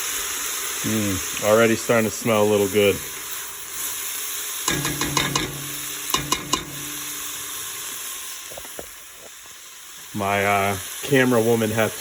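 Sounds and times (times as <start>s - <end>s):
vegetables sizzling in a pot: 0.0s - 12.0s
utensil knocking against pot: 4.7s - 7.0s.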